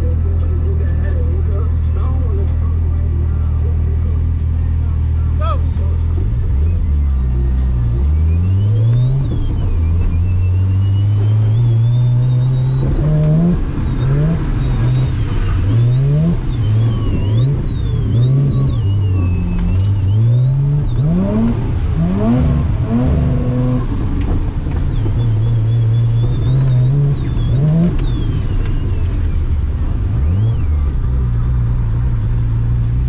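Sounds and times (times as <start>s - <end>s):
car engine revving hard: 6.0s - 29.2s.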